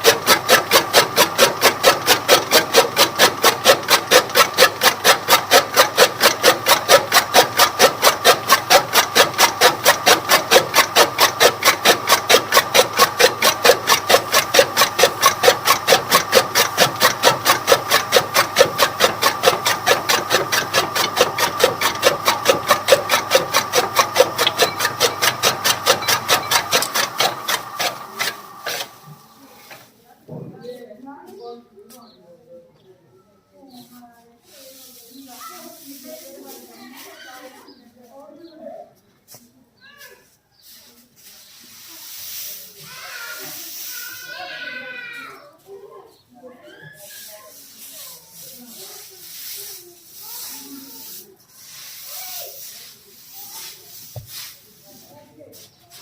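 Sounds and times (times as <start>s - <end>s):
chaff cutter blades striking: 0.0s - 29.9s, 47.1s - 56.0s.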